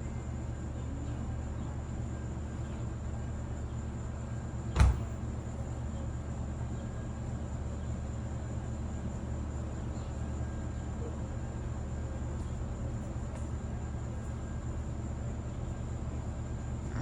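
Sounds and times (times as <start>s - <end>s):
sharp crack with low thump: 4.8s - 5.2s.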